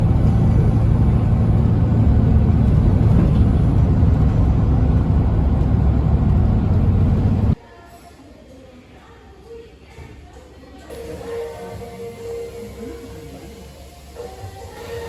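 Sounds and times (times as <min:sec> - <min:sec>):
vehicle engine rumble: 0:00.0 - 0:07.6.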